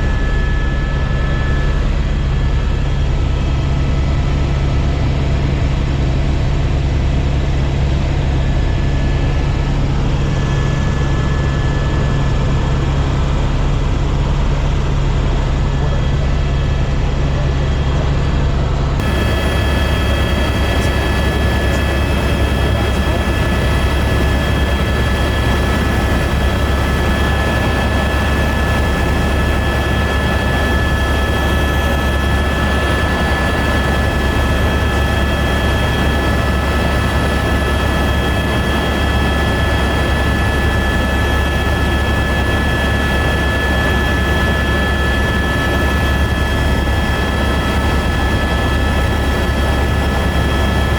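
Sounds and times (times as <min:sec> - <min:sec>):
helicopter drone: 0:00.0 - 0:50.9
high whining tones: 0:19.0 - 0:31.1.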